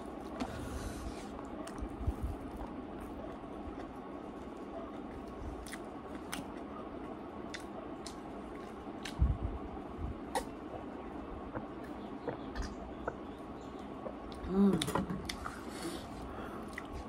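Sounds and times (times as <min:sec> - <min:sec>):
wet chewing: 0:01.2 - 0:09.2
mouth clicks: 0:10.3 - 0:10.6.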